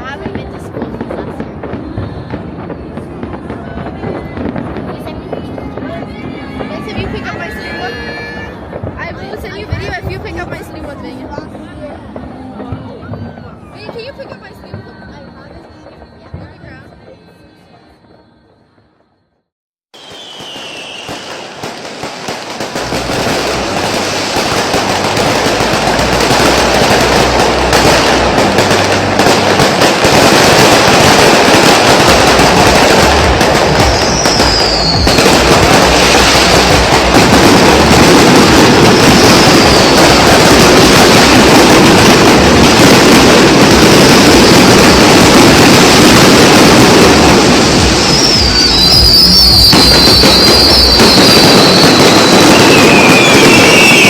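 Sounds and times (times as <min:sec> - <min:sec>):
fireworks bangs and crackling: 0:00.0 - 0:19.2, 0:20.0 - 0:54.0
rockets whistling: 0:20.0 - 0:54.0.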